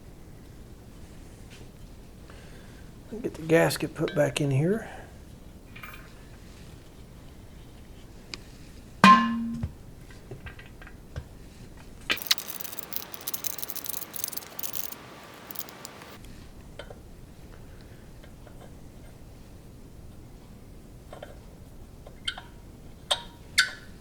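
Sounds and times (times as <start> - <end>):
metal parts clicking and scraping: 12.1 - 16.2.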